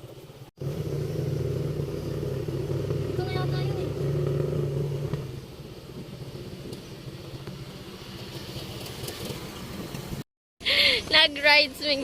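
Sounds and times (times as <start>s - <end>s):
motorcycle engine running: 0.4s - 9.8s.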